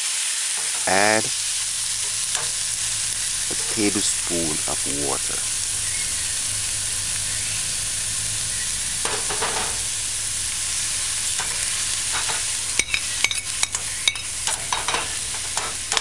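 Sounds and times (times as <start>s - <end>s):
food sizzling in oil: 0.0s - 16.0s
spoon clinking and scraping: 0.6s - 1.0s, 2.0s - 2.6s, 11.4s - 16.0s.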